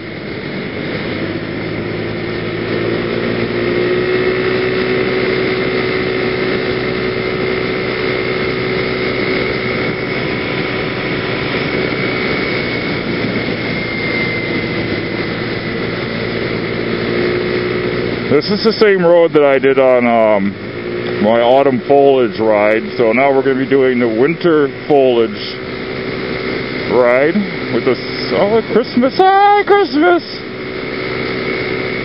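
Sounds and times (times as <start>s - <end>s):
scooter engine cruising: 0.0s - 32.0s
wind and road noise hiss: 0.0s - 32.0s.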